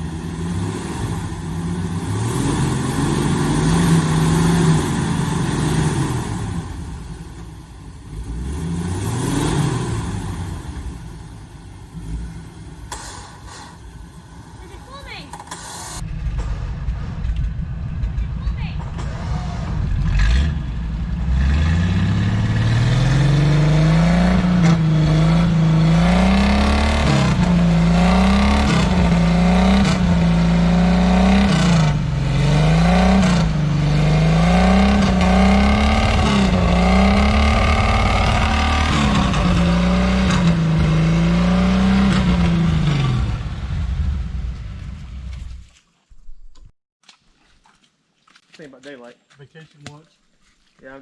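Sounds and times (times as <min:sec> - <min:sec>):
engine revving hard: 0:00.0 - 0:07.1, 0:08.1 - 0:11.0, 0:18.9 - 0:44.6.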